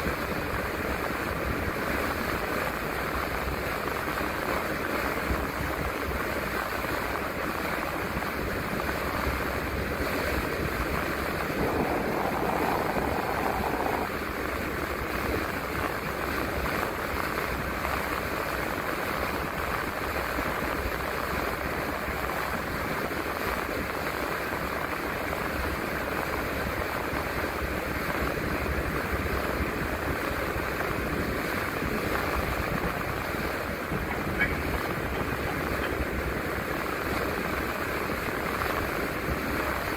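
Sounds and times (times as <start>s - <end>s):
road noise: 10.8s - 14.4s, 32.0s - 38.4s
bus engine rumble: 11.4s - 14.1s, 32.4s - 37.5s.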